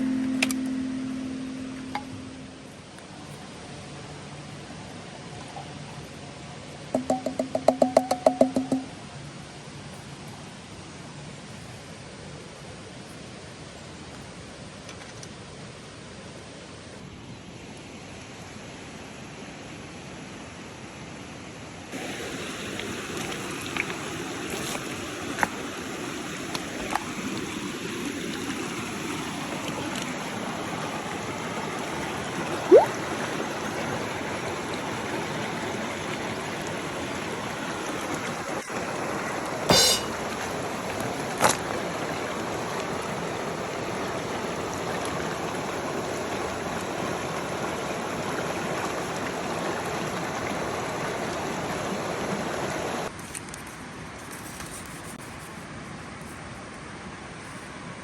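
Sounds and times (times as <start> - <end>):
river rushing: 21.9 - 53.1.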